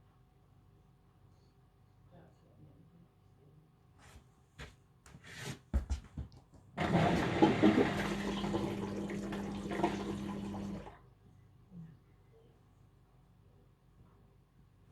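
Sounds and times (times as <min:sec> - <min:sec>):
washing machine hum: 0:06.8 - 0:11.0
water rushing through machine: 0:06.8 - 0:11.0.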